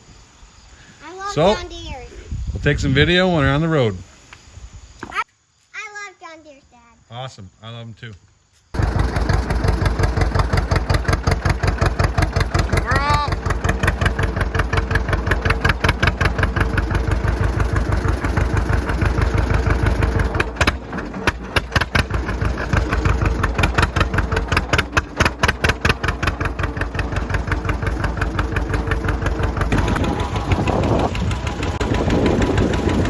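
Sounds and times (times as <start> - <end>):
tractor engine exhaust pulses: 8.8 - 33.0.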